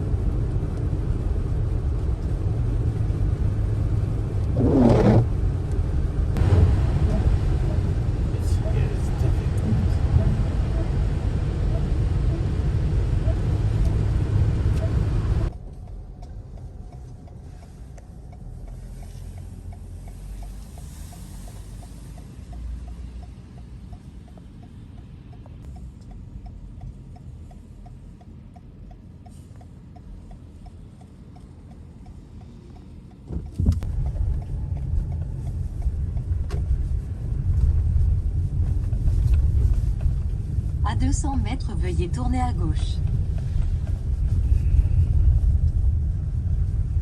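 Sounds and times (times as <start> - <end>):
car engine and road rumble: 0.0 - 47.0
faint regular ticking: 15.5 - 37.0.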